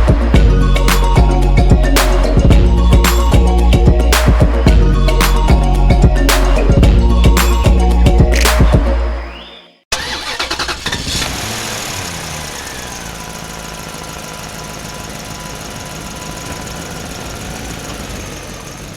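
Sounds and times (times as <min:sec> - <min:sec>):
music: 0:00.0 - 0:09.8
motorcycle engine starting and idling: 0:09.9 - 0:18.9.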